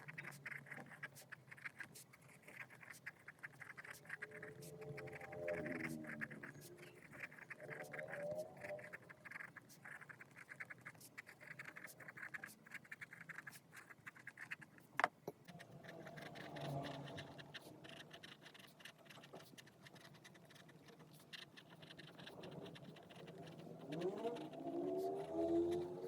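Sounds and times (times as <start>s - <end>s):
pen scratching on paper: 0.0s - 26.0s.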